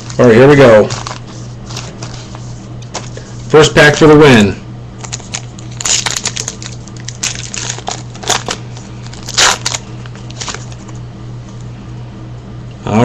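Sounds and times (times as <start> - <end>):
wrapper crinkling and tearing: 0.0 - 2.1, 5.0 - 11.0.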